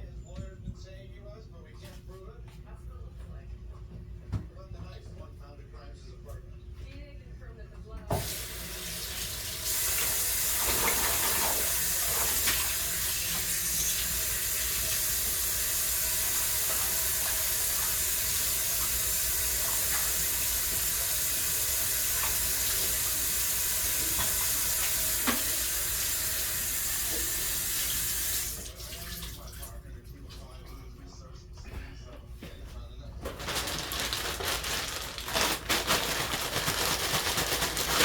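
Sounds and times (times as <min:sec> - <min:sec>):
water running from tap: 0:08.1 - 0:29.8.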